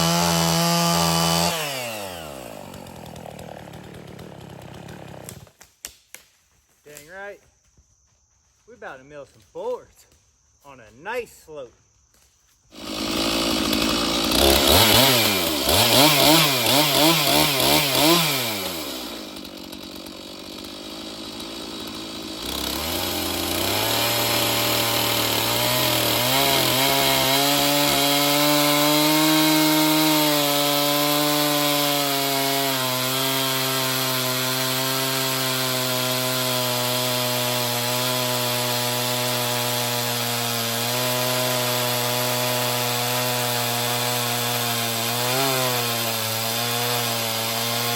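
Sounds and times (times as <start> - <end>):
chainsaw revving and idling: 0.0 - 5.7, 12.7 - 47.9.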